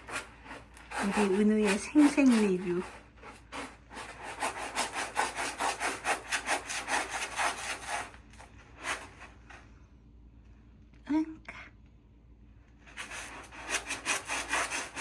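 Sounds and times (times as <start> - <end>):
cat scratching in litter box: 0.0 - 9.6, 12.9 - 15.0.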